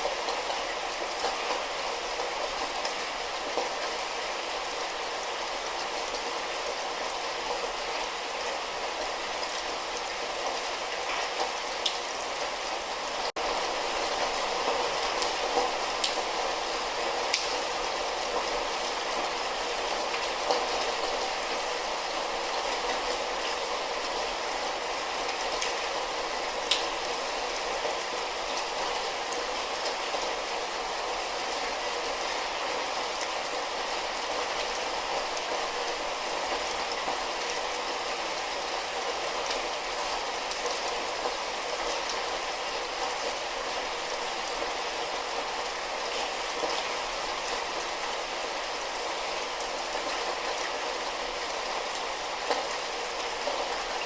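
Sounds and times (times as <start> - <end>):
light rain falling: 0.0 - 54.0
sharp rain drop ticks: 15.2 - 16.3, 17.3 - 17.6, 26.6 - 26.9.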